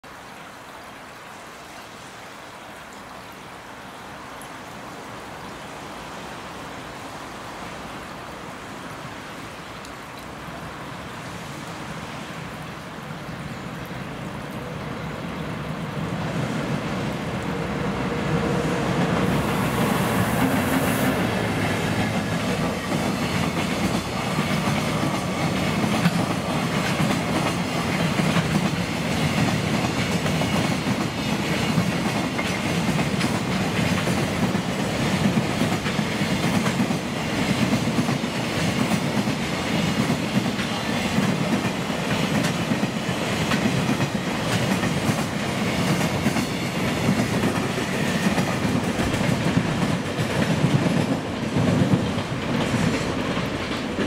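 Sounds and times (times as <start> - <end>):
freight train passing: 5.1 - 54.0.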